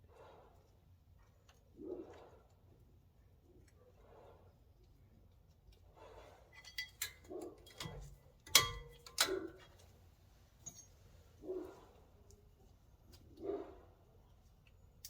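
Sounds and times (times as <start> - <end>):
metal parts clinking: 6.6 - 9.7, 10.6 - 11.0.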